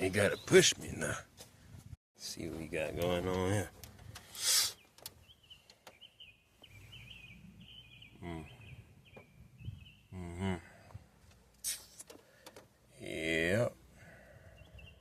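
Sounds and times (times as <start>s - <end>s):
man murmuring: 10.1s - 10.8s.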